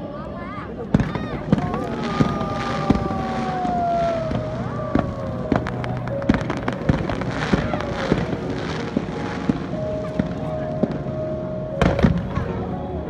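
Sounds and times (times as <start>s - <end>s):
fireworks bangs and crackles: 0.8s - 11.2s, 11.8s - 13.0s
falling firework whistle: 1.0s - 10.4s.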